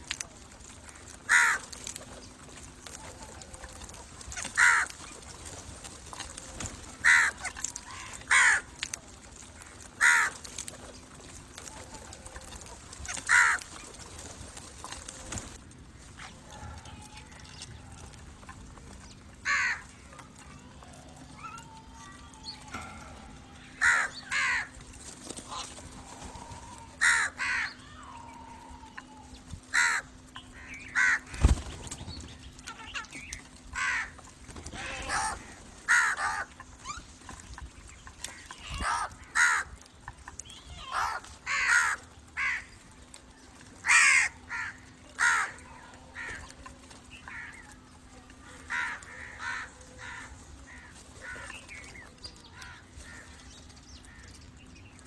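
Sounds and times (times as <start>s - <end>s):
crows cawing: 0.6s - 14.0s, 19.4s - 20.2s, 21.4s - 31.4s, 32.7s - 37.5s, 38.1s - 39.9s, 40.9s - 43.0s, 43.8s - 54.4s.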